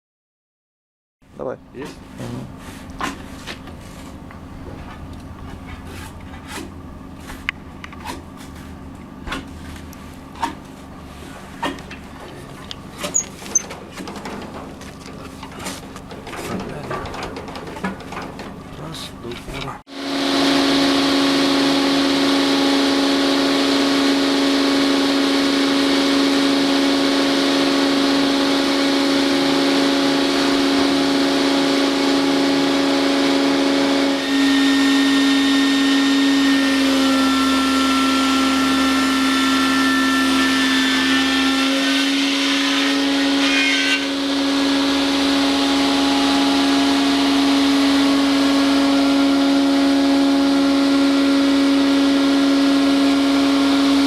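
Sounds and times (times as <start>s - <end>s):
saw running with steady hum: 18.8s - 54.0s
high whining tones: 42.9s - 54.0s.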